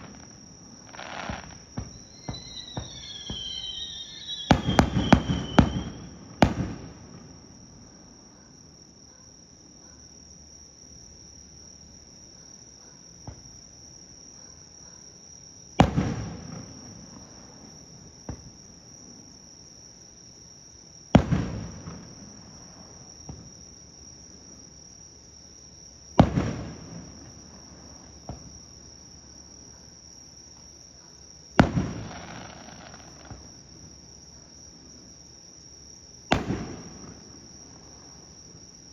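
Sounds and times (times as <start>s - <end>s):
firework bangs echoing: 0.0s - 7.6s, 15.8s - 17.2s, 21.2s - 22.3s, 26.2s - 27.5s, 31.6s - 33.5s, 36.3s - 37.8s
insect chorus: 0.0s - 38.9s.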